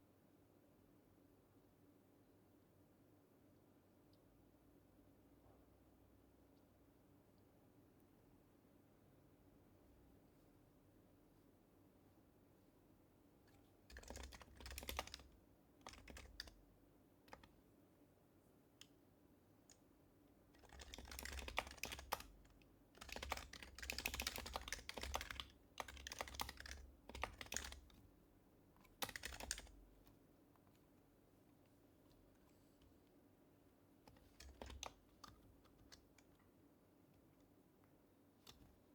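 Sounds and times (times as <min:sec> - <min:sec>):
soft keyboard typing clicks: 0:13.5 - 0:16.6, 0:17.2 - 0:17.6, 0:20.5 - 0:28.0, 0:28.8 - 0:30.7, 0:34.0 - 0:36.5.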